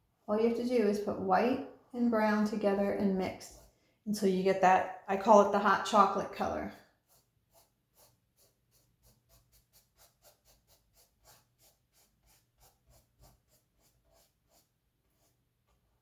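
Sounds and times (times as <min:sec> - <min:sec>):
paintbrush strokes on canvas: 0:02.5 - 0:03.8, 0:06.3 - 0:16.0.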